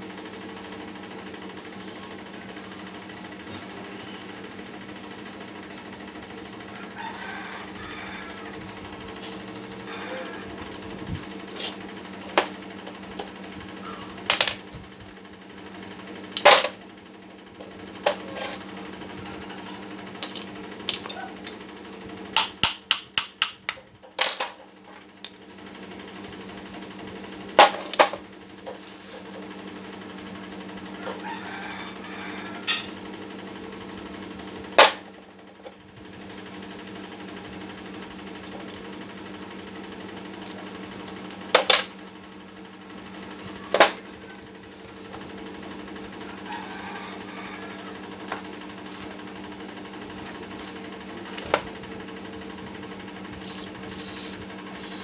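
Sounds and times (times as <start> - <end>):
steady low hum: 0.0 - 24.2.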